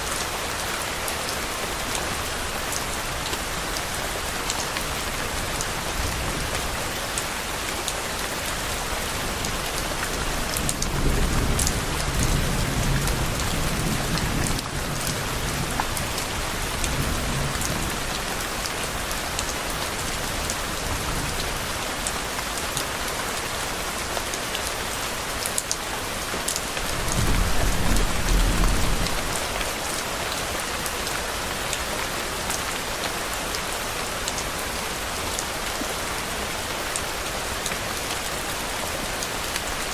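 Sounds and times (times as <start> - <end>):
steady rain: 0.0 - 39.9
thunder rumbling: 26.8 - 29.8.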